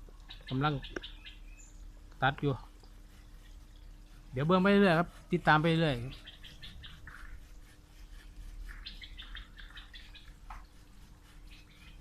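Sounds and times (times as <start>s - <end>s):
quiet outdoor background noise: 0.0s - 12.0s
faint bird chirps: 8.6s - 10.4s, 11.4s - 12.0s.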